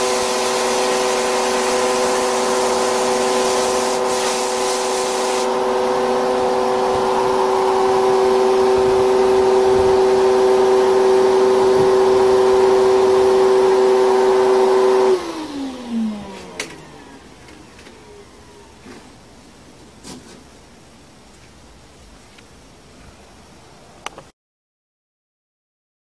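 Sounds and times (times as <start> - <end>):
power tool grinding steel: 0.0 - 15.2.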